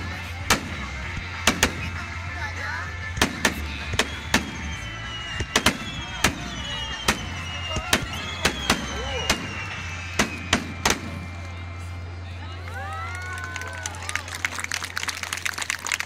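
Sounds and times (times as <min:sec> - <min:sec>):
falling firework whistles: 0:03.7 - 0:11.5.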